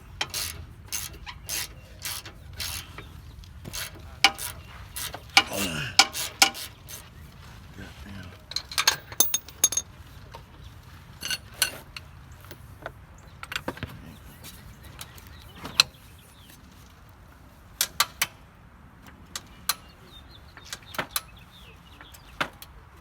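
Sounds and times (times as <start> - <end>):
metallic tool clicks and clinks: 8.7 - 9.8.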